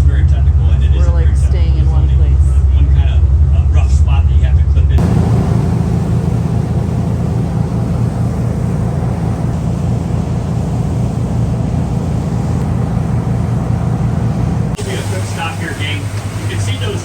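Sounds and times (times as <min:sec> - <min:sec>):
jet boat engine droning: 0:05.0 - 0:17.0
rushing hiss of water: 0:14.8 - 0:17.0.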